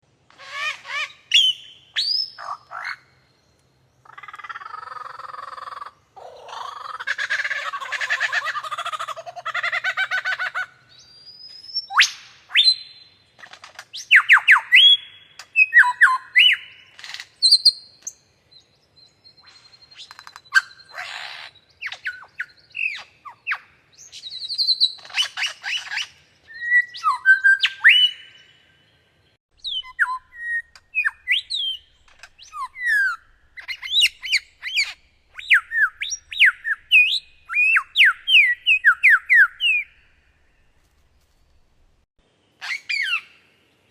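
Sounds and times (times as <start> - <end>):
bird whistling song: 0.4 - 3.1, 10.9 - 13.2, 13.9 - 28.9, 29.6 - 40.7, 42.6 - 43.6.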